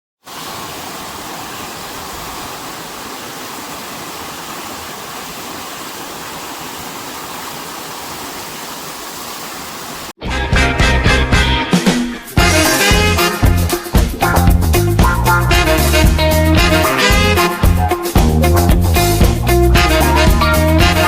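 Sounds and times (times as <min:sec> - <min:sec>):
heavy rain hiss: 0:00.2 - 0:10.2.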